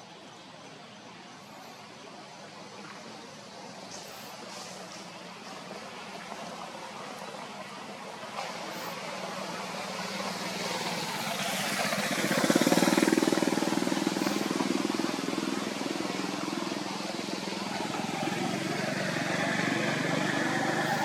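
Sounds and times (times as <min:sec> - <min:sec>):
vehicle engine running: 0:10.2 - 0:21.0.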